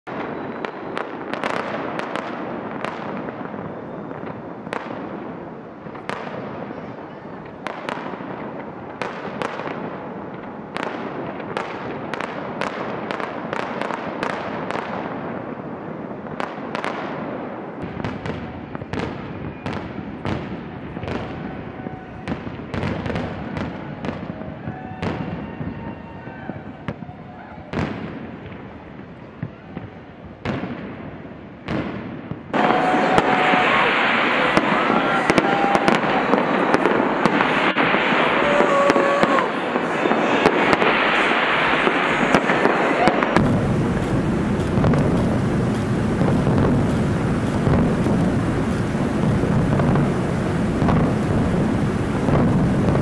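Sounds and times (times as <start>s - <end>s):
fireworks bangs: 0.0s - 53.0s
fireworks crackle: 0.0s - 53.0s
low rumble: 43.4s - 53.0s.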